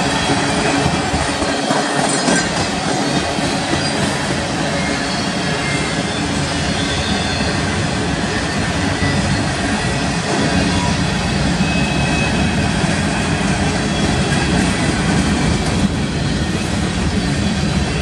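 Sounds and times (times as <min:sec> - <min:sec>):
freight train wheels rumbling: 0:00.0 - 0:18.0
faint wheel squeal: 0:03.0 - 0:11.0.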